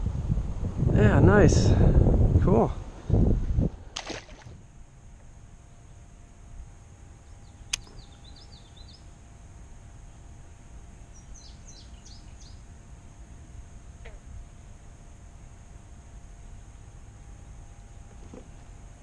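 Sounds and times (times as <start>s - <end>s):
small songbird chirping: 7.1s - 9.2s, 10.0s - 12.7s
sharp click: 7.7s - 7.9s.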